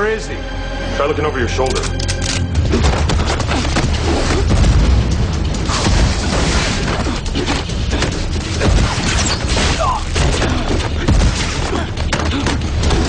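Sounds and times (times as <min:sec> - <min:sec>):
dramatic music score: 0:00.0 - 0:13.0
booms and crashing impacts: 0:02.6 - 0:13.0.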